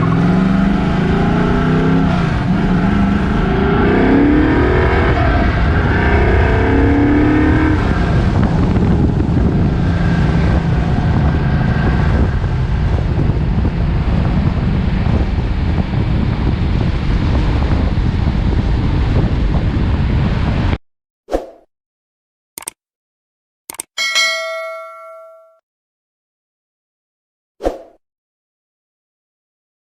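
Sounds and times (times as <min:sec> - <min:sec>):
car engine revving: 0:00.0 - 0:18.8.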